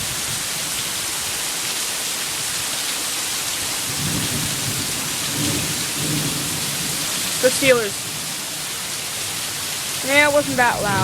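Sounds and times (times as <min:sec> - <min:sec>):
heavy rain pouring: 0:00.0 - 0:11.0
thunder rumbling: 0:03.9 - 0:08.4, 0:10.0 - 0:11.0.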